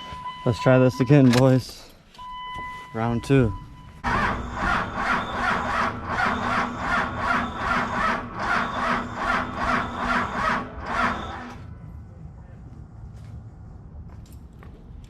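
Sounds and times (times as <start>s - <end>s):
starter motor whine: 4.0s - 11.6s
diesel engine cranking over: 4.0s - 11.7s.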